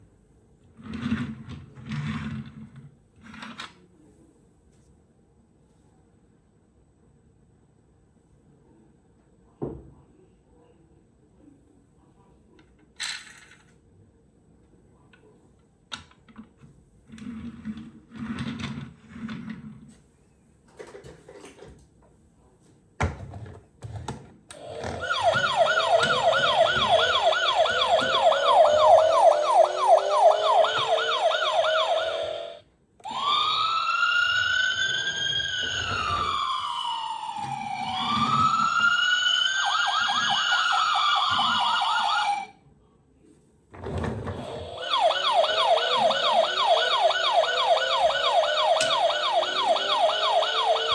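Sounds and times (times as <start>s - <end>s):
electronic police siren: 24.6s - 42.5s, 44.3s - 50.9s.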